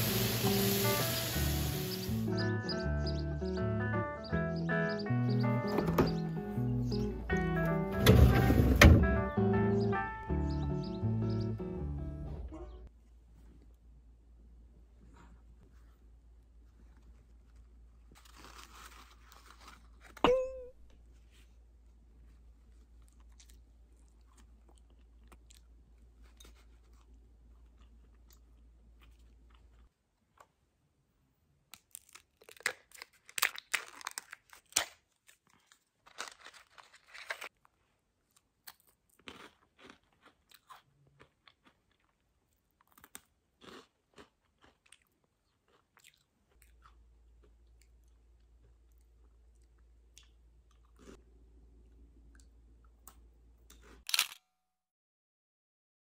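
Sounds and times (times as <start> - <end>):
crunchy snacks being chewed: 16.8 - 20.2, 22.6 - 30.6, 31.7 - 51.2.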